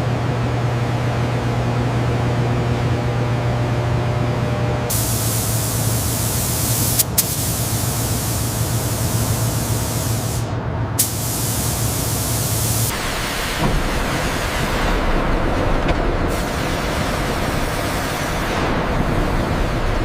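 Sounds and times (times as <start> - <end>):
low machine hum: 0.0 - 20.0
high-pressure hissing spray: 4.9 - 14.9, 16.3 - 19.9.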